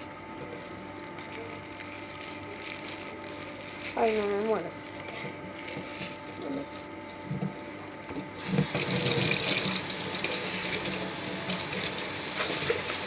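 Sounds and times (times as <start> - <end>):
water running: 8.2 - 13.0.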